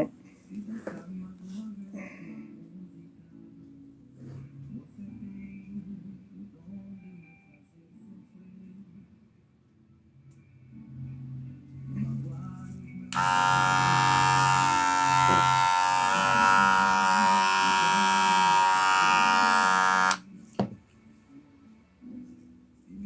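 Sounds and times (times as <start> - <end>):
hair clipper buzzing: 13.1 - 20.2.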